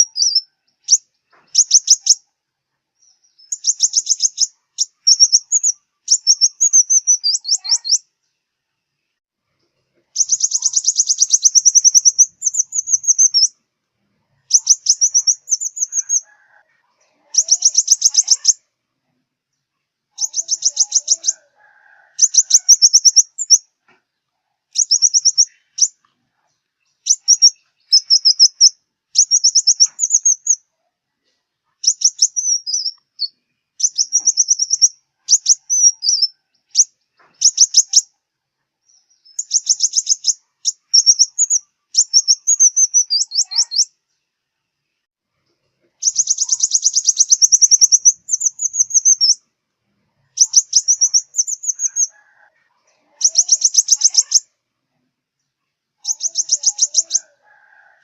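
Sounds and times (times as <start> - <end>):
bird trilling song: 0.0 - 2.3, 3.0 - 8.2, 10.1 - 13.6, 14.4 - 16.6, 17.2 - 18.7, 20.1 - 21.5, 22.2 - 23.7, 24.7 - 26.0, 26.8 - 30.7, 31.7 - 38.2, 38.8 - 44.0, 46.0 - 49.4, 50.2 - 52.4, 53.0 - 54.5, 56.0 - 57.8.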